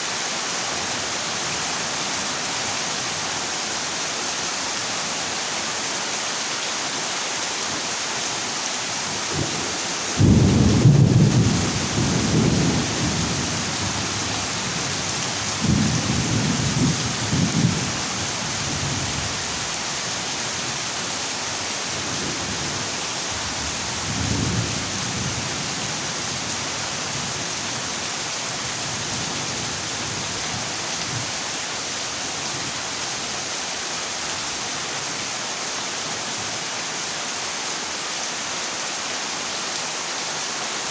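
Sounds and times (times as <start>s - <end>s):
heavy rain on metal roof: 0.0s - 40.9s
thunder rumbling: 10.2s - 14.9s.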